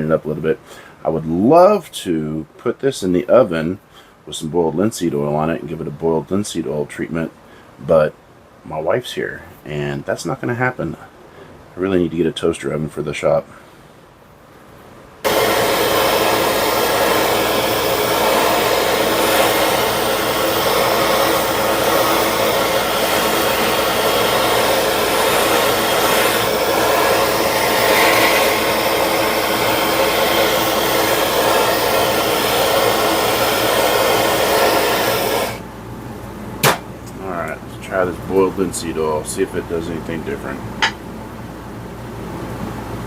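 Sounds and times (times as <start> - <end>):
heat gun blowing hot air: 15.2 - 35.6.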